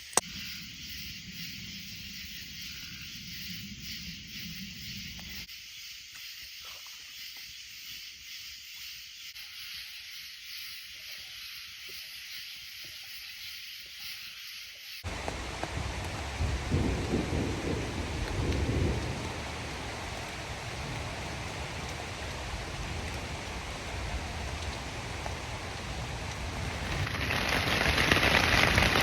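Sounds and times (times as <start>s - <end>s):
heavy downpour with deep rumble: 15.0s - 29.0s
rain falling: 15.0s - 29.0s.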